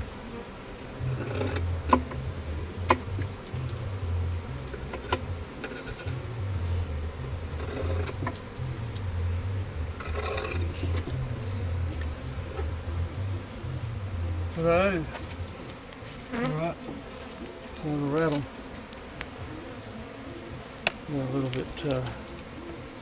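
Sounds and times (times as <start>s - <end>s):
low uneven rumble: 0.0s - 18.5s
honeybees buzzing: 0.0s - 23.0s
sharp knocks: 1.0s - 3.7s, 4.5s - 9.2s.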